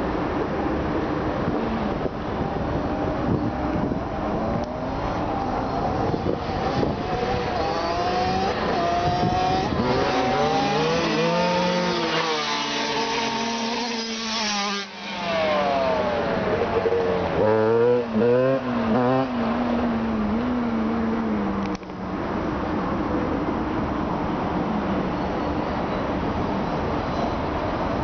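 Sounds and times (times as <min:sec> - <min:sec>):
motocross bike engine revving: 0:06.1 - 0:19.4.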